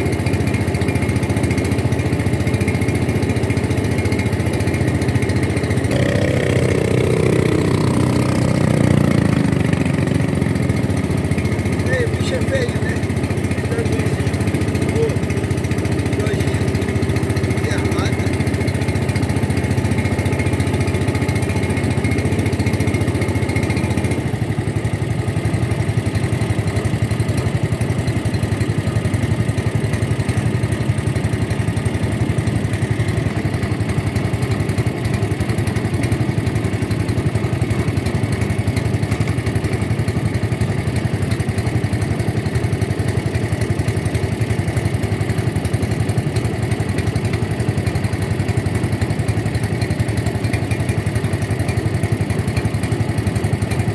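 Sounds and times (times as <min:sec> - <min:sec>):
boat engine droning: 0:00.0 - 0:24.3.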